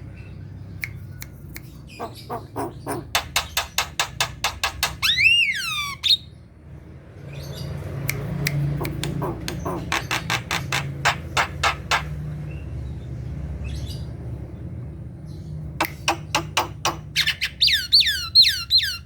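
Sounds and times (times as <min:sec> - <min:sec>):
bird sharp clicking notes: 0:00.8 - 0:05.4, 0:08.0 - 0:12.2, 0:15.8 - 0:17.4
bird whistle rising and falling: 0:05.0 - 0:06.2.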